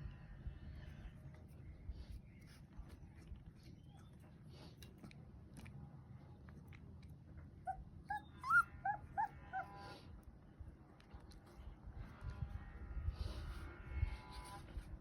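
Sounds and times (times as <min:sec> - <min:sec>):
puppy whimpering: 0:07.6 - 0:09.8.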